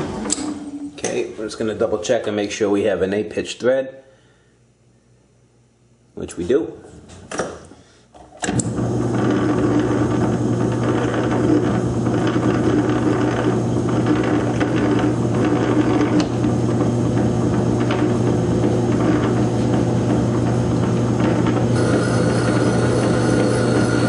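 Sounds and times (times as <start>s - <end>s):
lathe motor hum: 8.6s - 24.0s.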